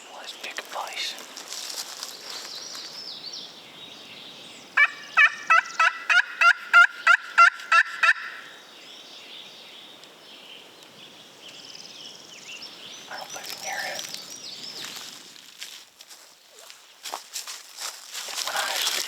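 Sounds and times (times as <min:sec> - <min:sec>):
turkey call yelps: 0:04.8 - 0:08.5.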